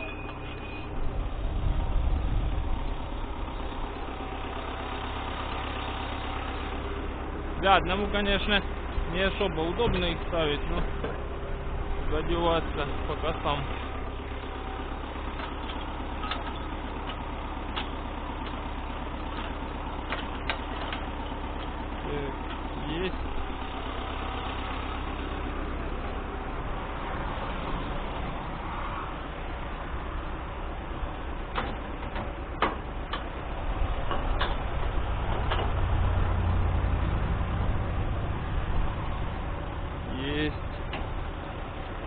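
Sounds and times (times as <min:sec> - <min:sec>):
tractor diesel engine idling: 0:00.0 - 0:42.0
clicks and knocks of parts fitted: 0:15.4 - 0:18.6, 0:19.3 - 0:21.8, 0:31.5 - 0:33.3, 0:34.0 - 0:34.6.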